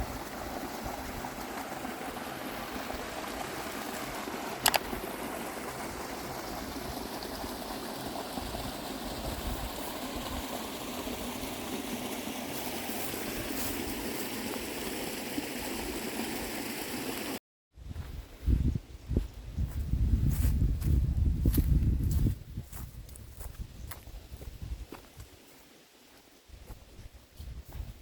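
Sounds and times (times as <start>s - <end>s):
stream trickling: 0.0s - 17.4s
sharp click: 4.6s - 4.9s.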